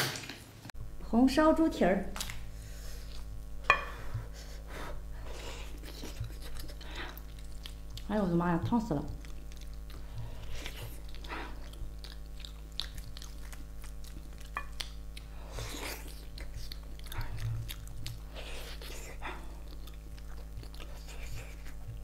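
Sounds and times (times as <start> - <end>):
steady low hum: 0.5 - 22.0
close chewing and biting: 2.2 - 3.4, 4.3 - 22.0.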